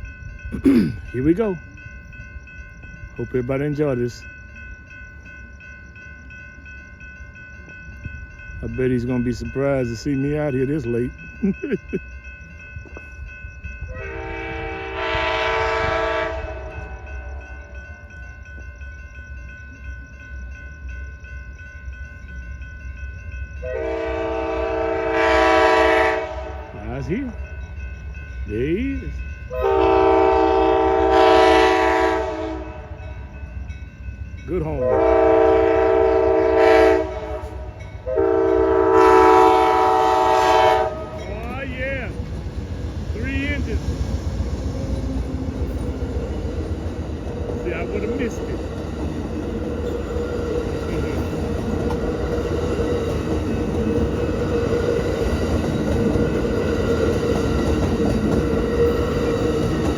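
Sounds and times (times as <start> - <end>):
train rumbling: 0.0 - 59.9
locomotive horn blast: 13.9 - 17.2, 23.6 - 26.8, 29.5 - 33.0, 34.8 - 41.2.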